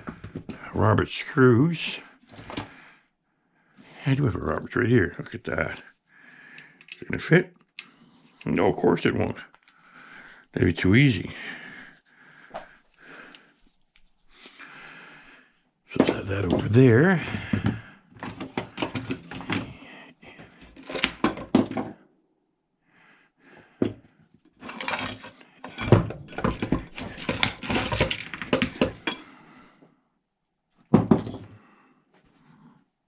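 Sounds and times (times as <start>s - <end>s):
metal tools clinking: 20.4s - 21.7s, 24.5s - 29.3s.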